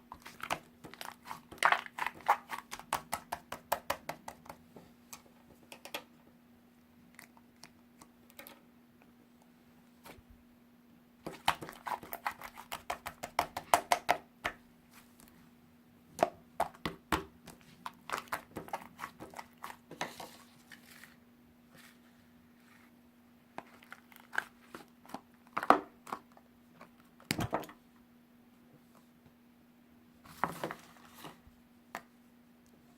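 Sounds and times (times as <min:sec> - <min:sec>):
faint steady hum: 0:00.0 - 0:32.9
rustling and crinkling: 0:17.5 - 0:27.1, 0:30.3 - 0:31.5.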